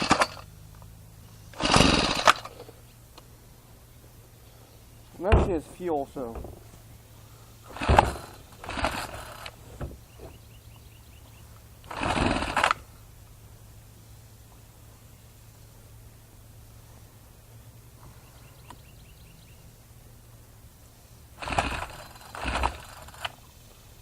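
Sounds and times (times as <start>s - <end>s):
recoil starter cord pulls: 0.0s - 0.9s, 1.5s - 2.8s, 7.6s - 10.4s, 11.8s - 12.9s, 21.4s - 23.5s.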